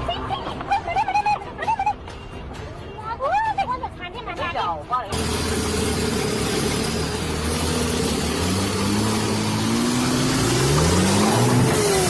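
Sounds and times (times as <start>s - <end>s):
truck engine revving up: 5.1s - 12.0s.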